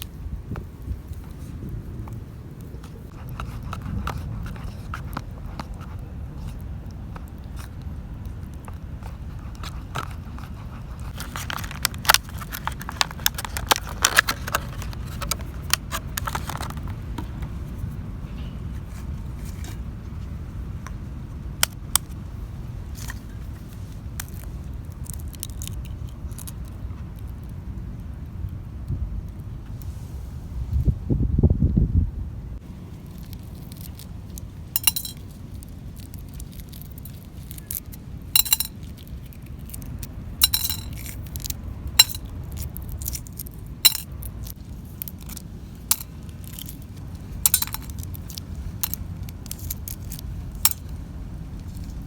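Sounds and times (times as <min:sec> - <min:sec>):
wind rumbling on microphone: 0:00.0 - 0:52.0
small hard objects clicking: 0:07.2 - 0:17.0, 0:24.1 - 0:27.3, 0:33.1 - 0:51.0.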